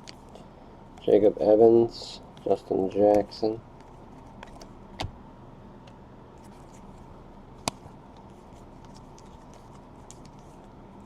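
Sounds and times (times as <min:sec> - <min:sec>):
faint steady hum: 0:00.0 - 0:11.0
trading cards being handled: 0:02.4 - 0:05.1, 0:06.4 - 0:10.8.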